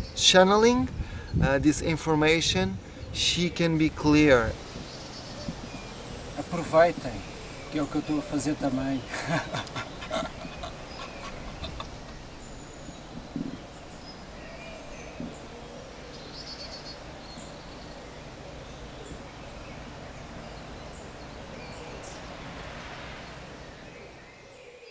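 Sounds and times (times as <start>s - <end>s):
low background noise: 0.0s - 24.9s
bird chirps: 3.0s - 24.9s
bird trill: 4.6s - 22.3s
soft knocks: 13.1s - 13.7s.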